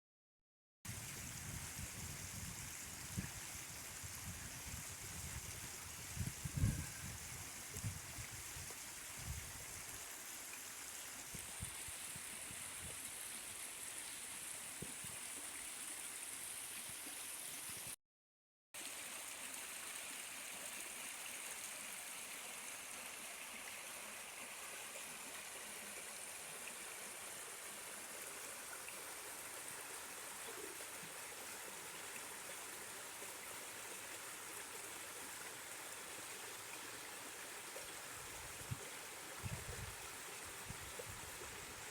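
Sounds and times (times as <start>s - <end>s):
stream of water running: 0.9s - 18.0s, 18.8s - 41.9s.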